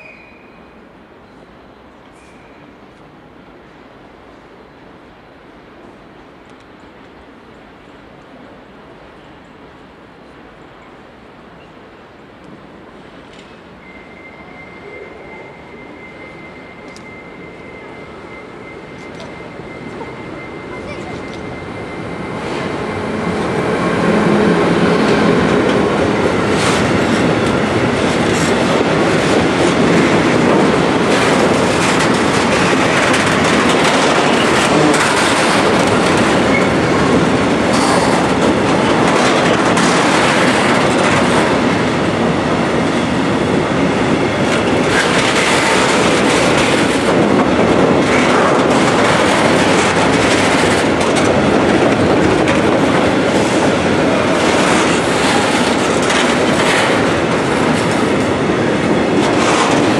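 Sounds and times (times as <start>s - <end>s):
freight train rumbling past: 0.0s - 59.9s
wheels clattering over rail joints: 25.2s - 41.6s, 44.5s - 53.6s, 54.3s - 58.4s.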